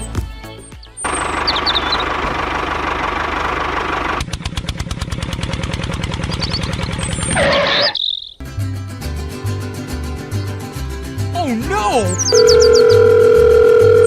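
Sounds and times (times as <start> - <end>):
small engine chugging: 1.0 - 7.4.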